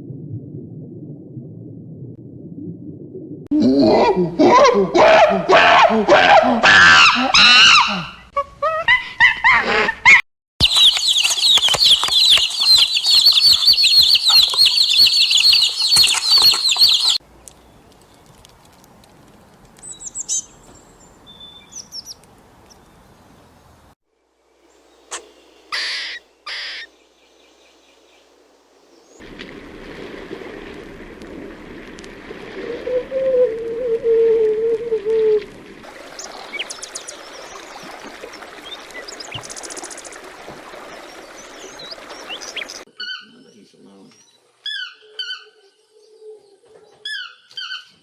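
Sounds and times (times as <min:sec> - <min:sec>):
birds chirping chorus: 0:10.6 - 0:24.0, 0:35.9 - 0:48.0.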